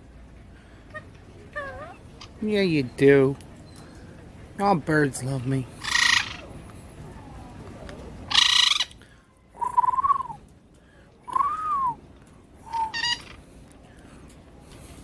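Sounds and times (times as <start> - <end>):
parrot screeching: 5.8 - 6.5, 8.3 - 9.0, 12.7 - 13.4
parrot squawk: 5.8 - 6.5, 8.3 - 9.0, 12.7 - 13.4
parrot whistled calls: 12.6 - 13.4.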